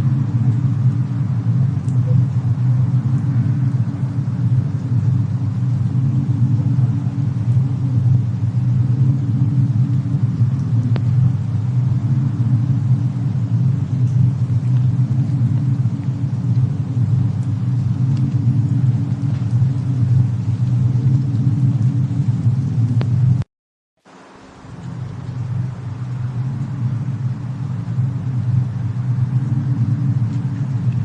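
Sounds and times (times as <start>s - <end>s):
steady low rumble: 0.0s - 23.5s, 24.1s - 31.0s
fire crackles: 0.0s - 31.0s.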